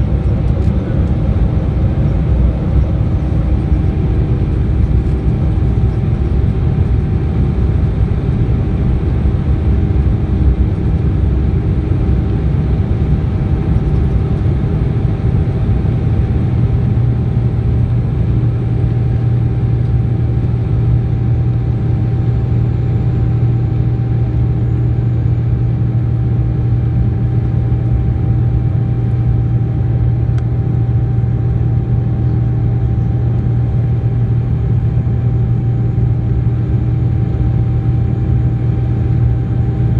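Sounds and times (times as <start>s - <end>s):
low drone: 0.0s - 11.9s
airliner cabin engine rumble: 0.0s - 39.9s.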